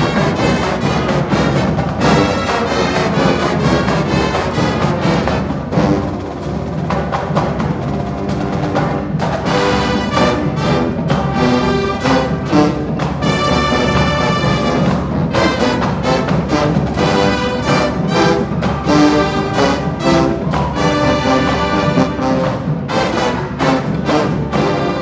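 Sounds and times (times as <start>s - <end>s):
brass horns playing melody: 0.0s - 25.0s
drumline: 0.0s - 25.0s.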